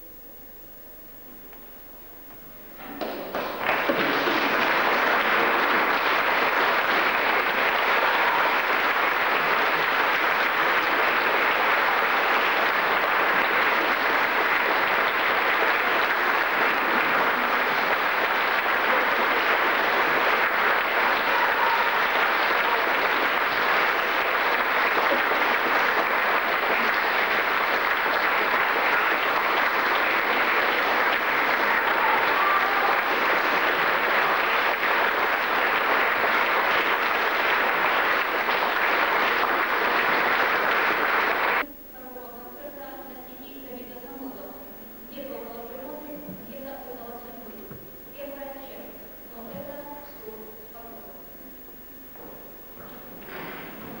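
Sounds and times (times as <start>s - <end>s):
audience applauding: 2.8s - 41.6s, 53.0s - 54.0s.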